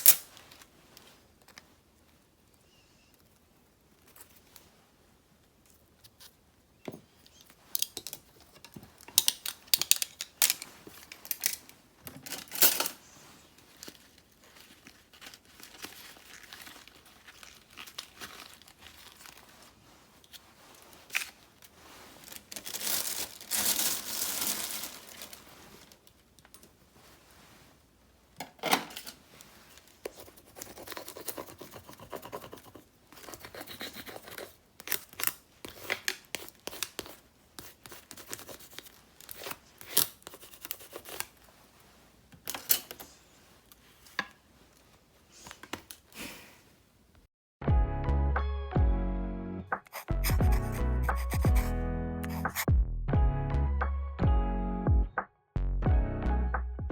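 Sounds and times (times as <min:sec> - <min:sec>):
paper crinkling: 0:07.4 - 0:27.7, 0:29.0 - 0:45.1
paper tearing: 0:49.8 - 0:52.7.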